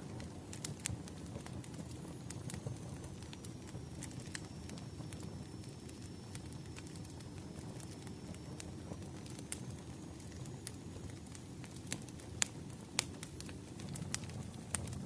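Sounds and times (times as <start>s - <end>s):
low rumble of flames: 0.0s - 15.0s
wood fire pops and snaps: 0.0s - 15.0s.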